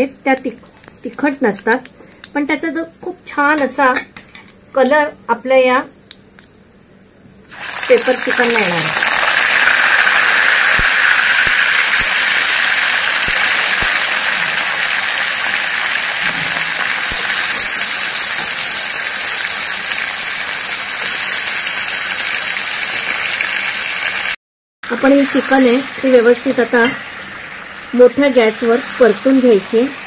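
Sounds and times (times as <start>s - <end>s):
chicken sizzling in hot oil: 7.4s - 30.0s.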